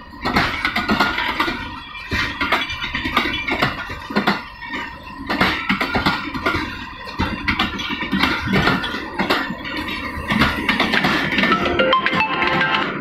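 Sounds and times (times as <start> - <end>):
train wheels clattering over rail joints: 0.0 - 13.0
steady high tone: 11.4 - 13.0.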